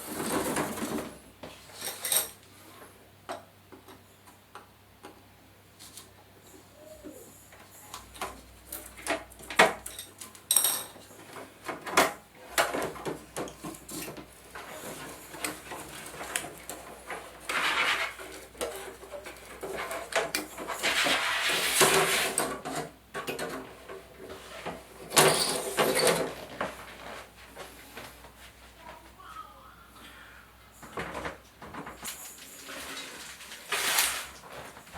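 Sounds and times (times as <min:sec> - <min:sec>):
scraping and rustling: 0:10.8 - 0:29.2, 0:30.9 - 0:34.9.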